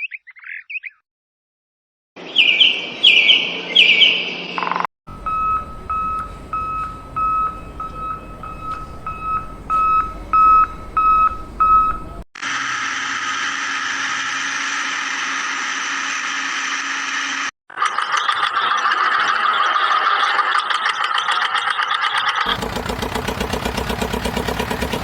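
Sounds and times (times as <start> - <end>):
short electronic beeps: 5.1 - 12.2.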